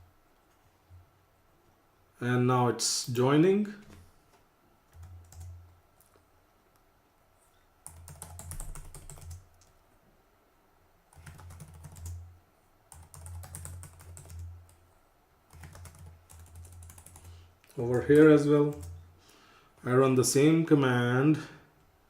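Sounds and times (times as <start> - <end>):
computer keyboard typing: 4.9 - 6.1, 7.8 - 9.8, 11.1 - 12.2, 12.9 - 14.8, 15.5 - 17.3, 18.0 - 19.0.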